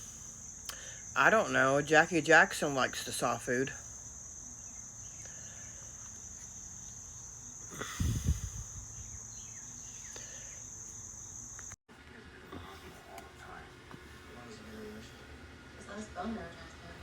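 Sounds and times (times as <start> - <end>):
crickets trilling: 0.0 - 11.8.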